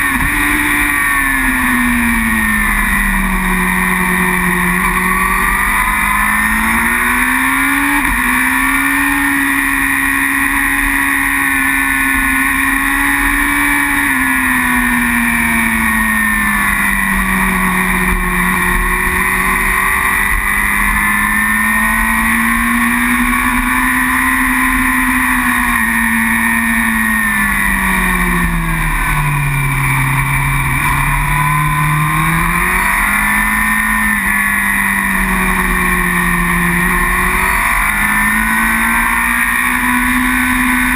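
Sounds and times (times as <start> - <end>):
superbike engine accelerating: 0.0 - 40.9.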